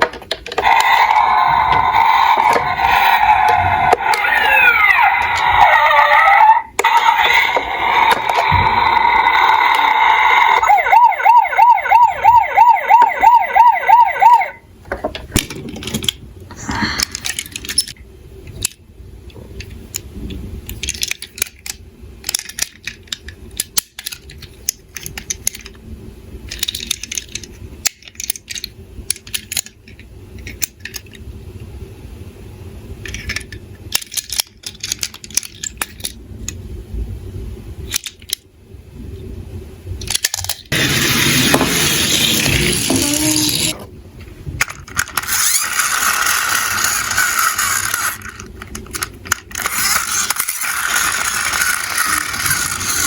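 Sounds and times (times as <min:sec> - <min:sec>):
toy cars clicking and clattering: 0:00.0 - 0:06.0, 0:14.4 - 0:18.8, 0:19.6 - 0:25.8, 0:26.4 - 0:31.3, 0:33.0 - 0:36.7, 0:37.8 - 0:38.5, 0:40.0 - 0:43.8, 0:44.6 - 0:53.0
toy siren yelping: 0:00.6 - 0:14.6, 0:49.7 - 0:53.0.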